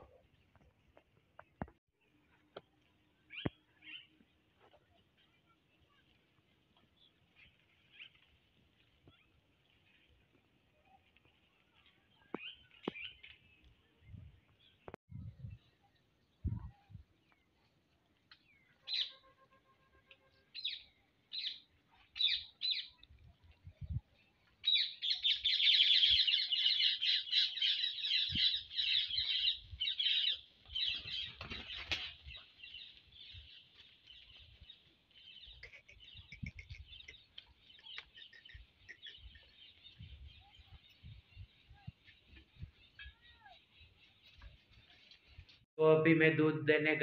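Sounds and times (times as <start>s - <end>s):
small birds chirping: 0.2s - 19.2s, 20.4s - 45.6s
birds chattering chorus: 24.6s - 44.0s.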